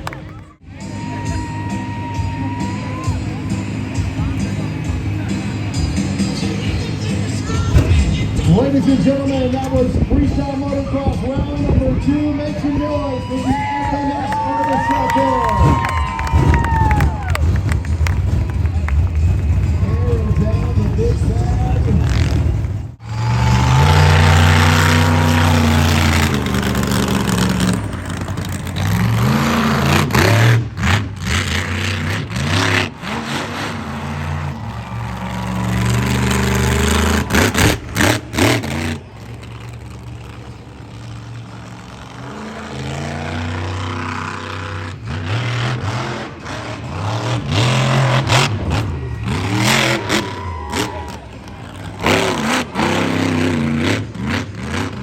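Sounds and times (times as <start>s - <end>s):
vehicle engines revving: 0.0s - 55.0s.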